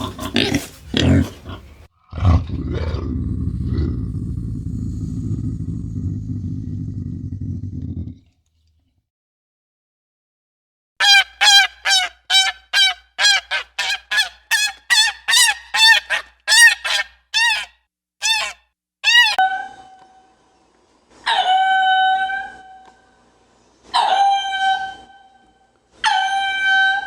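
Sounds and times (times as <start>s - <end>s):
animal honking calls: 11.0s - 19.4s.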